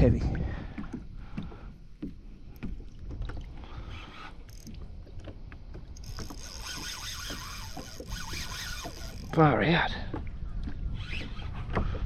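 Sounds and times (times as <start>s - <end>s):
low rumble: 0.0s - 0.8s.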